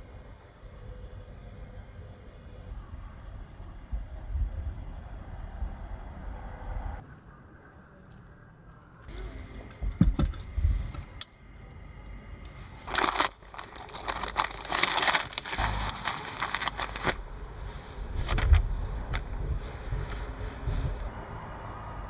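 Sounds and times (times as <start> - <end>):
crinkling and rustling: 12.4 - 21.1.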